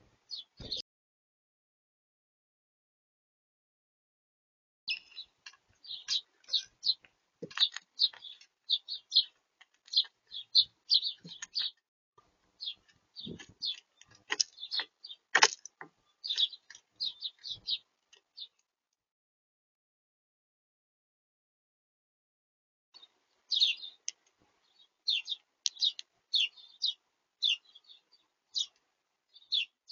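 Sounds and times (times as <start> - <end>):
small birds chirping: 0.0 - 0.8, 4.9 - 11.8, 12.4 - 18.6, 23.0 - 29.9
sharp taps and knocks: 7.4 - 8.4, 12.9 - 16.8.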